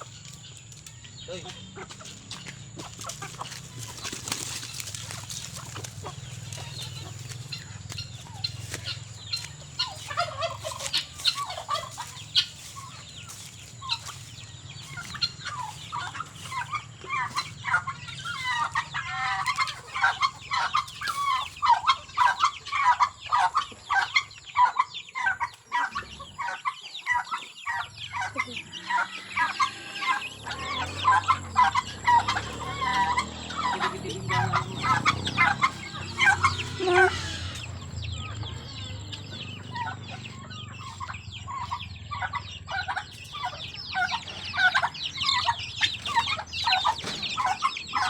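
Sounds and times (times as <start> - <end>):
chickens clucking: 0.0 - 48.0
turkey gobbling: 0.0 - 48.0.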